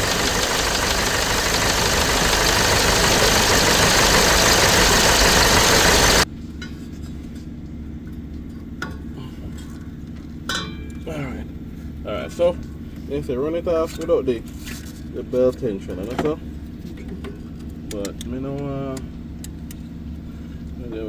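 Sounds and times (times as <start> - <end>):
diesel engine running: 0.0 - 6.2
low hum: 0.0 - 6.2.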